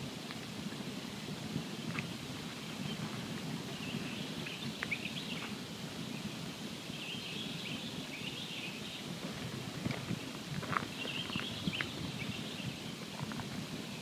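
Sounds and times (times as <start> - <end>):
campfire burning: 9.0 - 14.0.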